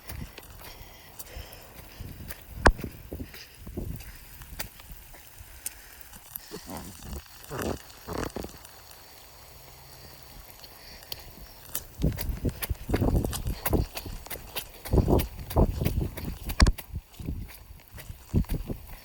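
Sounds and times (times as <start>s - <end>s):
footsteps outdoors: 0.0s - 19.0s
crackling clicks: 5.6s - 8.9s.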